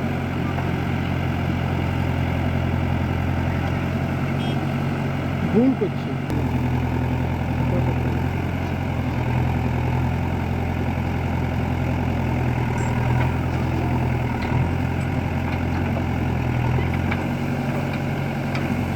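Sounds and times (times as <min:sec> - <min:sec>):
heavy diesel engine running: 0:00.0 - 0:18.9.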